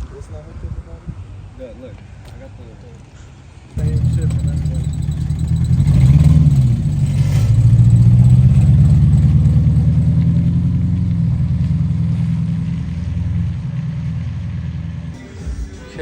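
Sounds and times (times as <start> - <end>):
car engine accelerating: 3.8 - 15.2.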